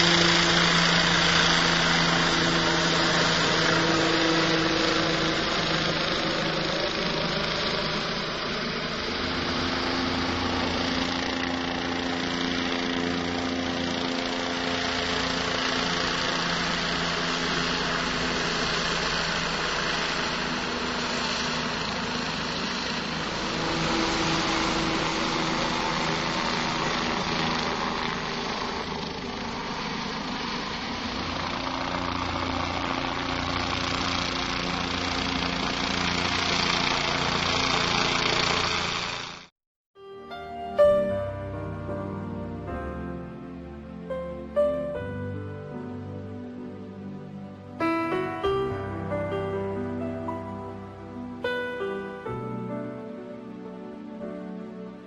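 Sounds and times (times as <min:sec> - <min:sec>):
boat engine idling: 0:00.0 - 0:39.5.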